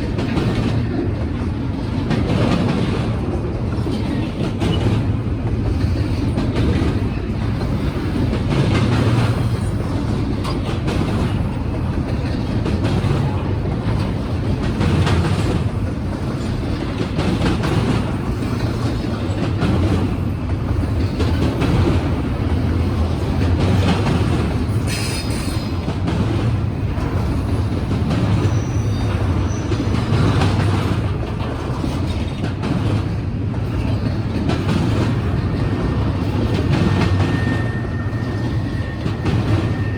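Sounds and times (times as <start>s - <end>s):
freight train rumbling past: 0.0s - 39.9s
wheels clacking over rail joints: 0.0s - 39.9s
high wheel squeal: 24.8s - 25.8s, 28.4s - 29.9s, 36.7s - 39.9s.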